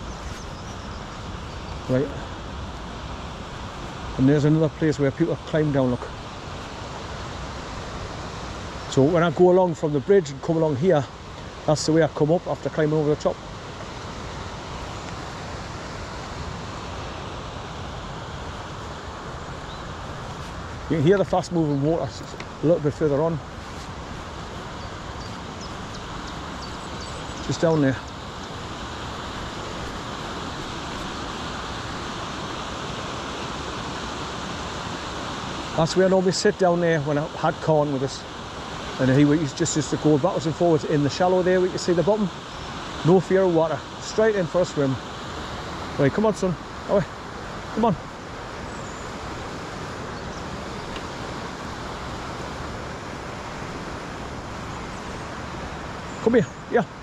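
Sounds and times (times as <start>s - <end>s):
river water rushing over rocks: 0.0s - 57.0s.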